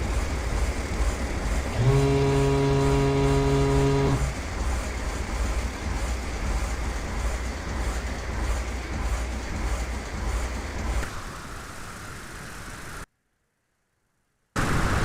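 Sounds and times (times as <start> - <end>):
horn-like warning tone: 1.7 - 4.5.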